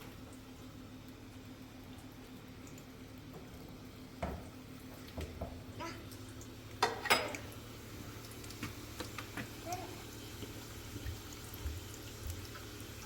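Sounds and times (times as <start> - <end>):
kitchenware clinks and knocks: 6.8 - 7.4.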